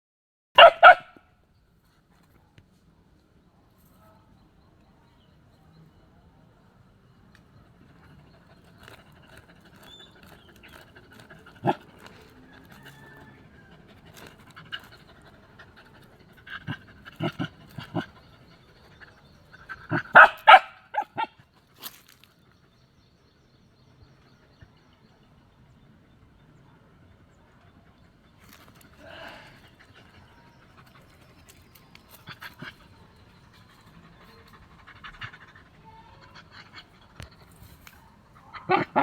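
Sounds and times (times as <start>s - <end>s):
dog barking: 0.6s - 1.2s, 11.6s - 11.8s, 19.9s - 21.4s, 38.5s - 39.0s.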